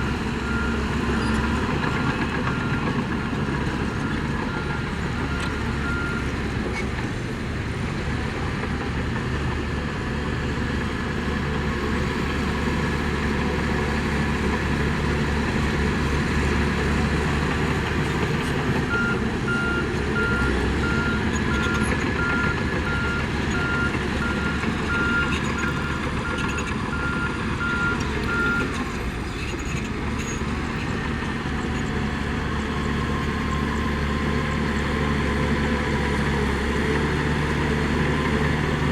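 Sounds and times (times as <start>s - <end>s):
heavy diesel machinery running: 0.0s - 38.9s
reversing alarm beeping: 18.9s - 28.7s.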